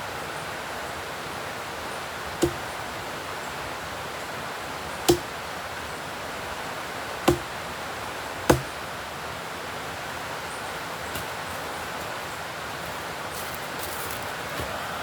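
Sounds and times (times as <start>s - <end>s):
tool knocking on wood: 2.4s - 2.7s, 7.3s - 7.5s, 8.5s - 8.7s.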